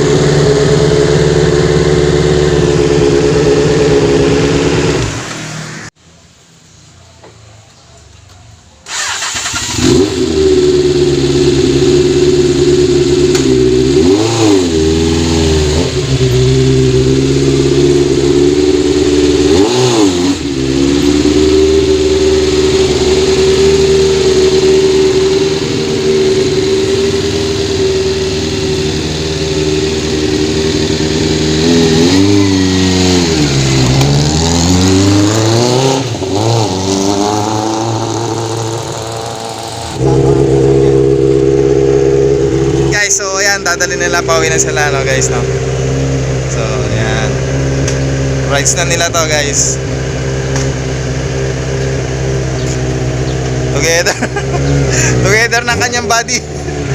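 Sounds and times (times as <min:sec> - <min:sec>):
motorcycle engine idling: 0:00.0 - 0:05.0, 0:20.5 - 0:34.2.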